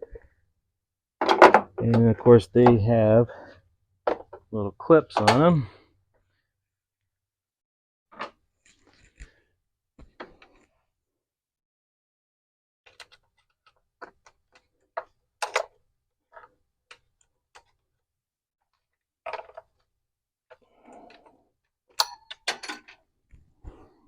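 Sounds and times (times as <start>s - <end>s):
metal tool clicks: 22.0s - 22.6s.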